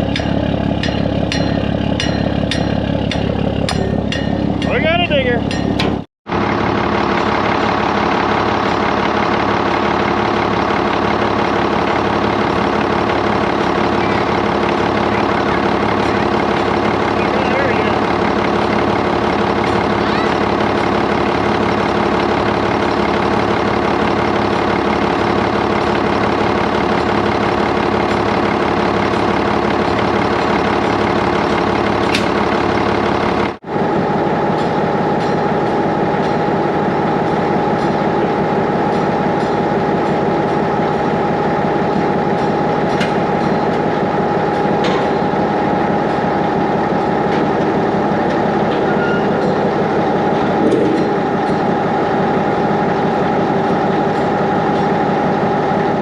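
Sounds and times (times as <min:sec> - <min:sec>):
steady high whine: 0:00.0 - 0:09.9
exhaust flapper rattling: 0:00.0 - 0:33.6
diesel truck engine idling: 0:00.0 - 0:56.0.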